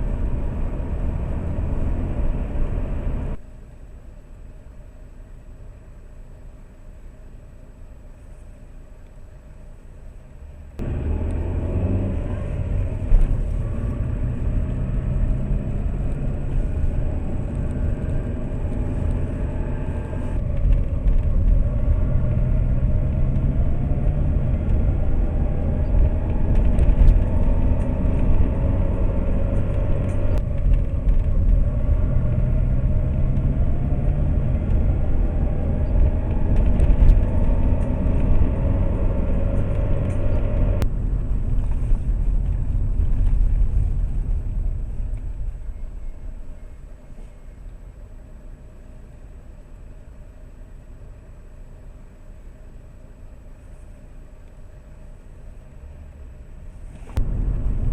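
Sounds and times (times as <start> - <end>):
car engine accelerating: 0.0 - 3.4, 10.4 - 47.7, 54.3 - 57.9.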